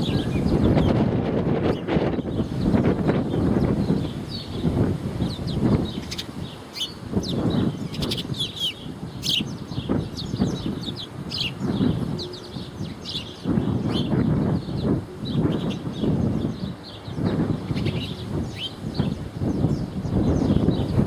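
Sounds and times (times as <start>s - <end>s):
small birds chirping: 0.0s - 21.0s
wind buffeting microphone: 0.0s - 21.0s.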